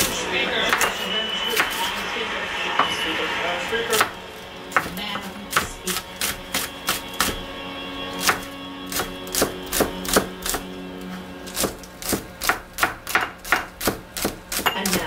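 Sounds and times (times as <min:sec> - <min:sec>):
background music: 0:00.0 - 0:13.3
knife chopping on cutting board: 0:00.7 - 0:01.0, 0:01.6 - 0:02.0, 0:03.9 - 0:07.5, 0:08.2 - 0:10.7, 0:11.5 - 0:15.0.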